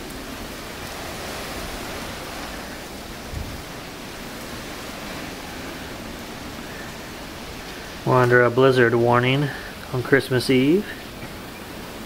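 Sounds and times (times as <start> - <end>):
blizzard wind rushing: 0.0 - 12.0.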